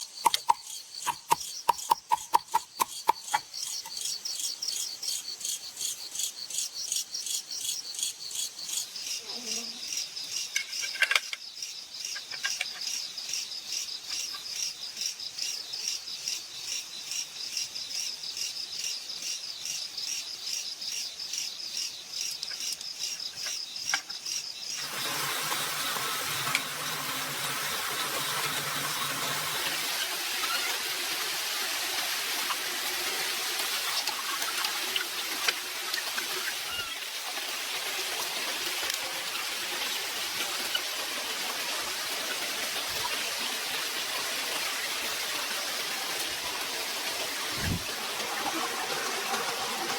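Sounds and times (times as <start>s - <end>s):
steady rushing noise: 47.4s - 48.0s.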